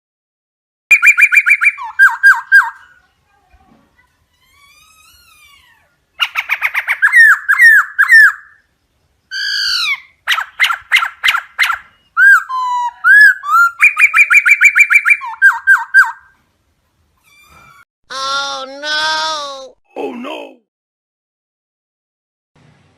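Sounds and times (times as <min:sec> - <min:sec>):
bird chirps and whistles: 0:00.9 - 0:02.8, 0:06.2 - 0:08.6, 0:09.3 - 0:16.3.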